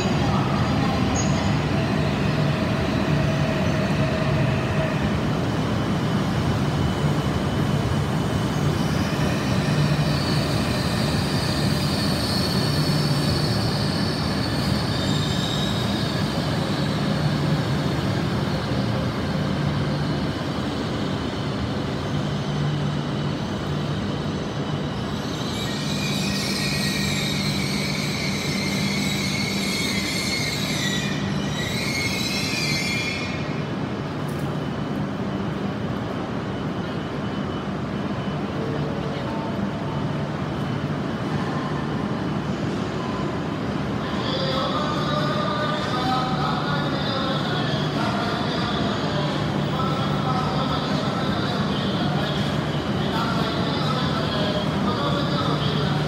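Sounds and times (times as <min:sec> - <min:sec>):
high-pitched wheel squeal: 0:08.8 - 0:17.2, 0:25.1 - 0:33.5.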